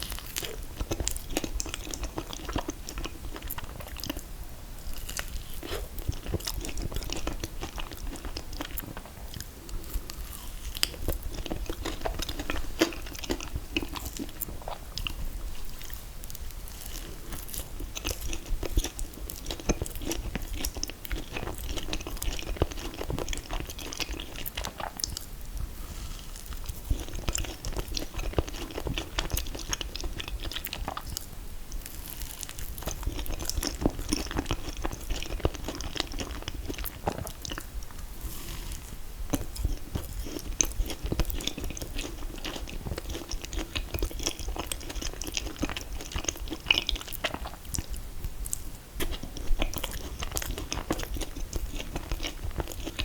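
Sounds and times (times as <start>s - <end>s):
biting and chewing: 0.0s - 4.2s, 4.9s - 25.3s, 26.4s - 38.1s, 38.7s - 53.0s.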